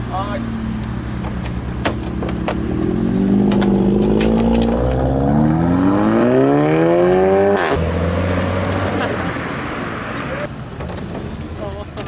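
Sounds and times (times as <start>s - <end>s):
car engine revving: 0.3s - 10.6s
sharp crack: 3.4s - 5.0s.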